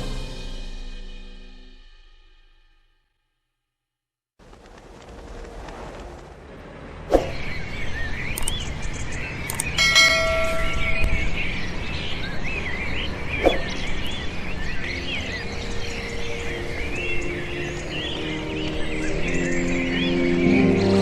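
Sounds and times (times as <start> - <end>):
many birds chirping: 7.2 - 21.0
soft sustained music tones: 8.2 - 21.0
bell-like chime: 9.8 - 11.3.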